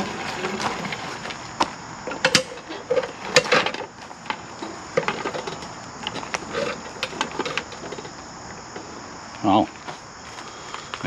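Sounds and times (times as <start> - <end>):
metal and wood clunks and rattles: 0.0 - 9.0
crickets chirping: 0.0 - 11.0.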